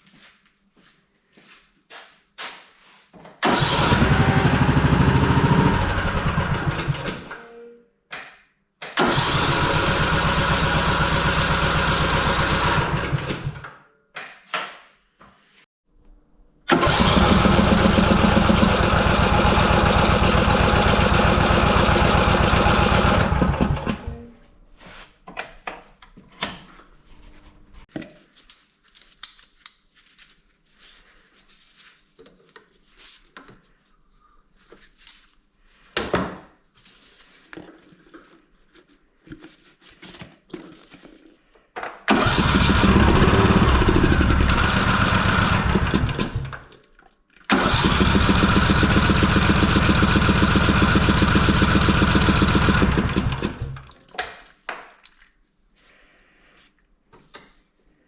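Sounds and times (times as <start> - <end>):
riding mower engine turning over: 3.4 - 7.4, 9.0 - 13.6, 16.7 - 24.1, 42.1 - 46.7, 47.5 - 53.8.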